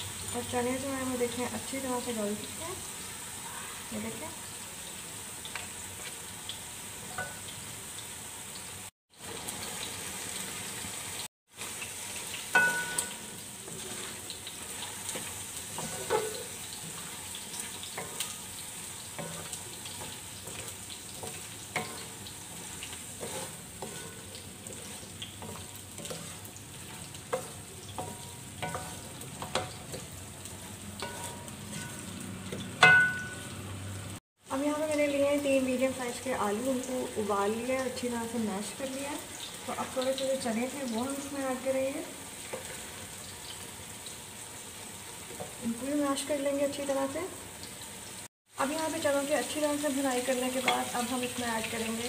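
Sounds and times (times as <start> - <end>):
food sizzling in oil: 0.0 - 52.0
spatula scraping a metal pan: 13.6 - 18.4, 19.2 - 32.1.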